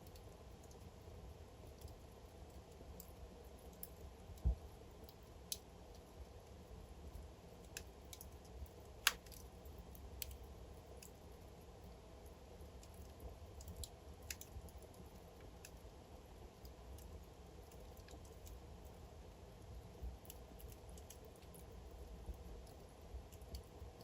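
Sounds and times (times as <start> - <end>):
fire crackling and popping: 0.0 - 24.0
low rumble of flames: 0.0 - 24.0
soft low thud: 4.4 - 4.6.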